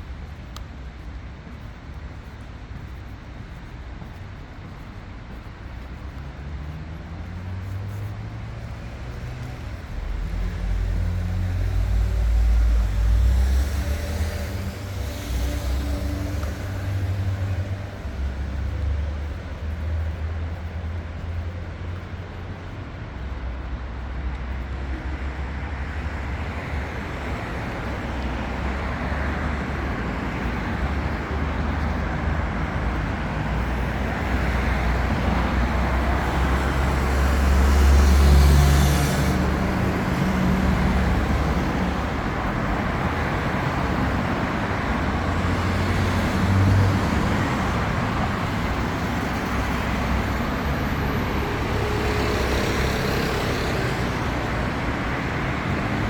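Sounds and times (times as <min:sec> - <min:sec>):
traffic rumble: 0:00.0 - 0:56.0
vehicle engine passing: 0:34.8 - 0:56.0.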